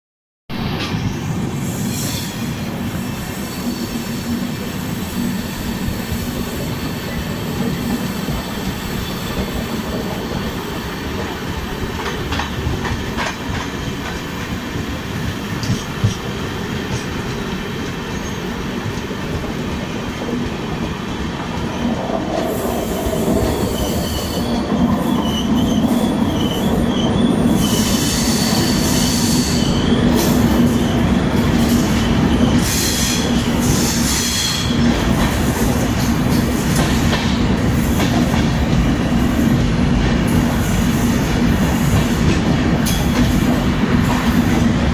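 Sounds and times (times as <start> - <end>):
train wheels rumbling and rattling: 0.5 - 44.9
high wheel squeal: 23.6 - 34.8.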